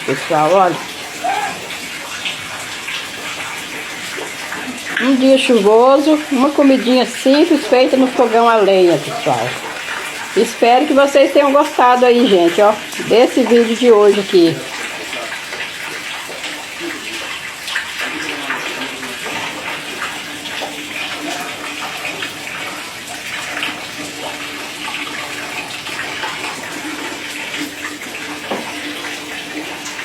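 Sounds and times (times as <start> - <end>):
heavy rain: 0.0 - 30.0.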